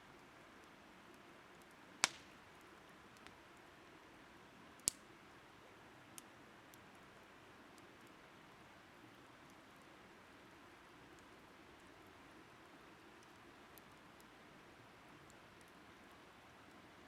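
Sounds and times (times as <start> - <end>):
campfire crackling: 0.0 - 17.0
sharp pops of burning wood: 2.0 - 2.6, 3.2 - 3.4, 4.8 - 5.1.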